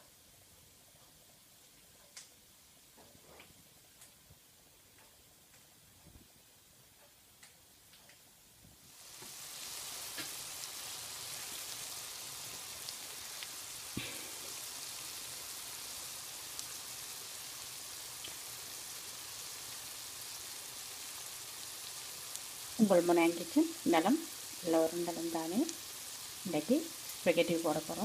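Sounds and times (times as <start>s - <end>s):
food sizzling in a pan: 8.8s - 28.0s
small pops of frying: 8.8s - 28.0s.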